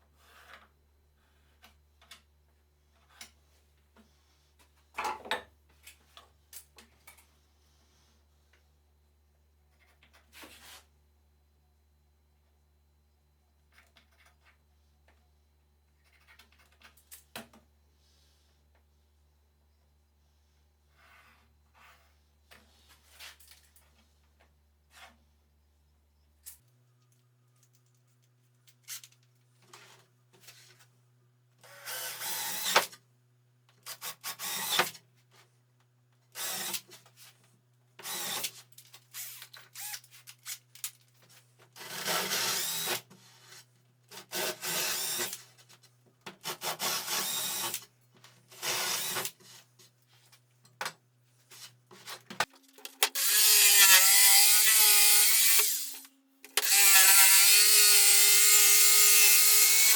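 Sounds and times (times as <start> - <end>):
power tool cutting plywood: 53.0 - 56.0, 56.6 - 59.9.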